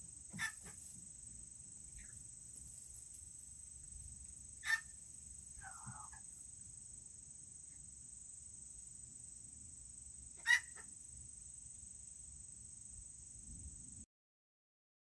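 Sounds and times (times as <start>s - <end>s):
faint high-pitched hiss: 0.0s - 14.1s
chicken call: 4.6s - 4.9s, 10.4s - 10.9s.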